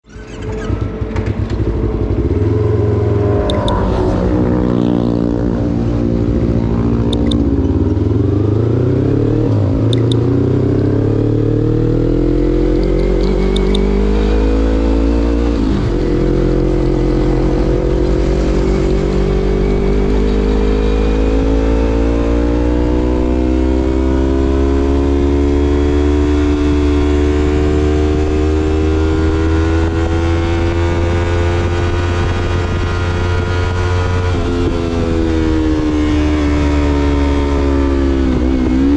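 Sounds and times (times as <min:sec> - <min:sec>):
motorcycle engine revving: 0:00.0 - 0:38.9
short clicks: 0:09.9 - 0:10.2.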